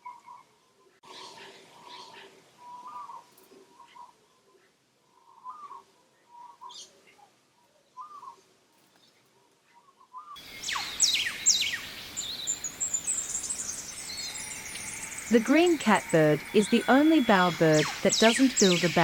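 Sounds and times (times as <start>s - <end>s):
background noise: 0.0s - 19.0s
whistled bird calls falling in pitch: 10.1s - 19.0s.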